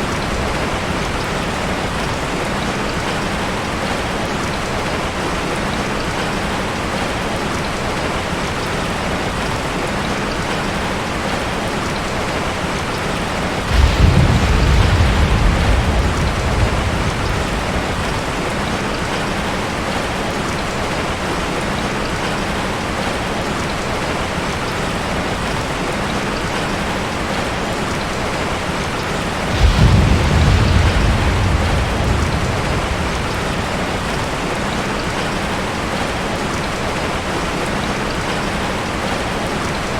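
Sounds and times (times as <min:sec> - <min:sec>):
heavy rain on a tin roof: 0:00.0 - 0:39.9
thunder rolling: 0:12.8 - 0:20.2, 0:28.3 - 0:36.2.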